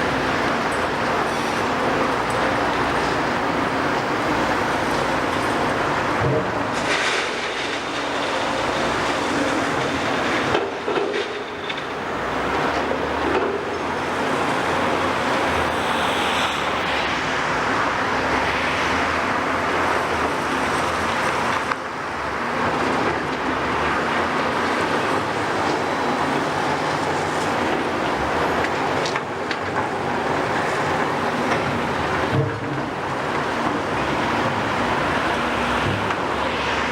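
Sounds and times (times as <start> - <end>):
rattling demolition noise: 0.0 - 15.7
excavator diesel engine running: 0.0 - 36.9.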